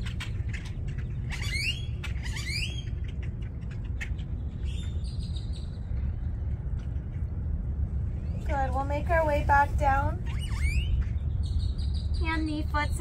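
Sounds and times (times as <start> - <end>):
bird calling: 0.0 - 6.2, 10.2 - 13.0
steady low rumble: 0.0 - 13.0.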